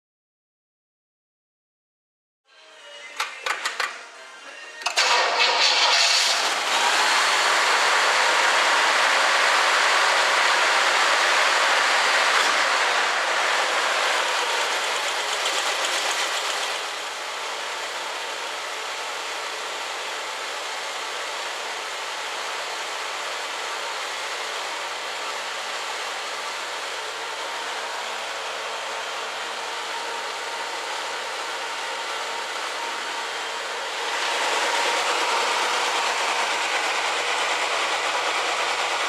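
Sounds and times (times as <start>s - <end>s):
gas hissing through hoses: 4.9s - 15.4s.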